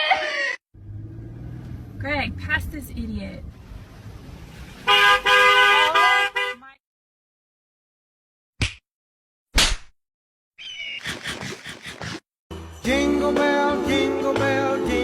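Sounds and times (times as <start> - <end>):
car horn blaring: 4.8 - 6.7.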